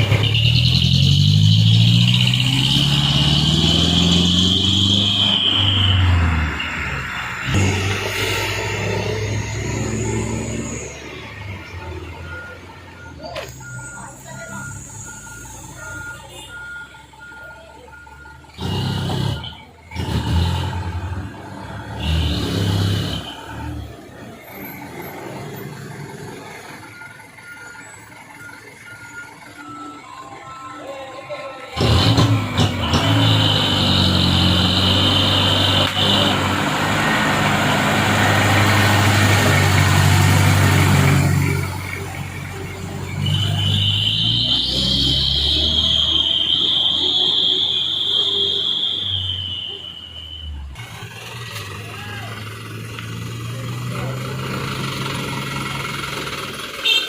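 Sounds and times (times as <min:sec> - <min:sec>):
diesel truck engine running: 0:00.0 - 0:48.9, 0:49.5 - 0:57.0.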